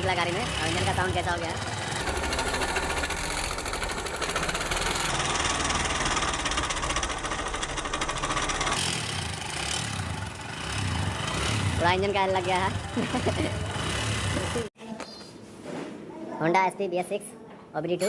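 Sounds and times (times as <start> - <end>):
engine heavy mechanical clatter: 0.0 - 14.7.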